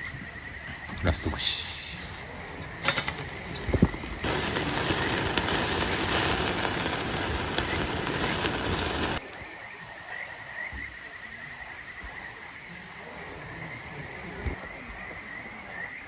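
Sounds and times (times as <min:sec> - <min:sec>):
meat sizzling on grill: 0:01.2 - 0:11.2.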